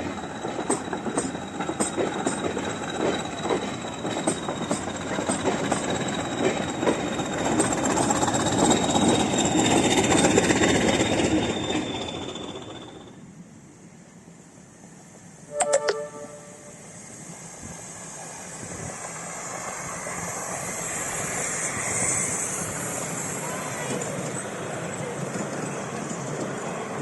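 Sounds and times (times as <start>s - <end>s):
train wheels clicking over rail joints: 0.0s - 13.0s, 22.0s - 27.0s.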